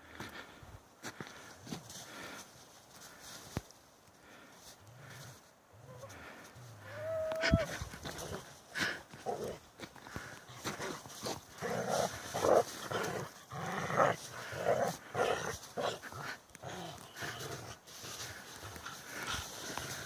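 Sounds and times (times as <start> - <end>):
dogs play growling: 7.6 - 20.0.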